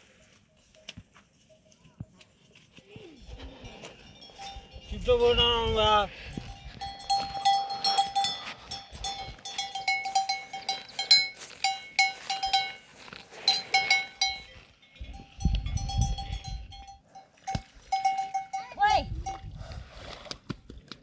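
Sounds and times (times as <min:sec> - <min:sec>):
livestock bells clanking: 0:03.2 - 0:19.5.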